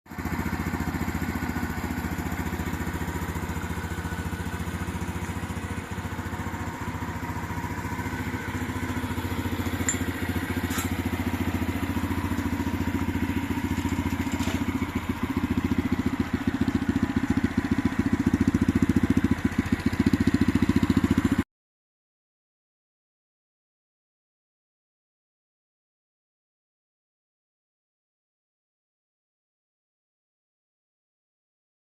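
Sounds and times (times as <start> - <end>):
motorcycle engine idling: 0.1 - 21.4.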